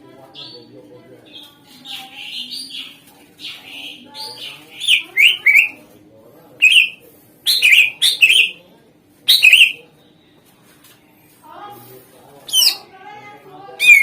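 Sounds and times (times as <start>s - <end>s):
bird singing chirps and whistles: 4.8s - 5.8s, 6.6s - 8.6s, 9.3s - 9.8s, 13.8s - 14.0s.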